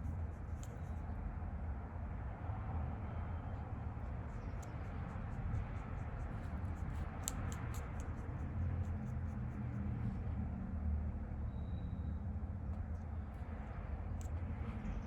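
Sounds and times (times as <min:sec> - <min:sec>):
scratching strokes on painting surface: 0:00.0 - 0:01.1, 0:04.0 - 0:10.4
steady low hum: 0:00.0 - 0:15.0
sharp clicks: 0:04.3 - 0:09.5.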